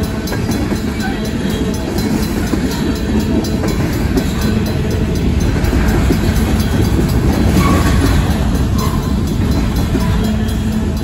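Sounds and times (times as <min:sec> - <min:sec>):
crossing bell ringing: 0:00.0 - 0:11.0
train wheels rumbling on rails: 0:00.0 - 0:11.0
wheels clacking over rail joints: 0:00.0 - 0:11.0.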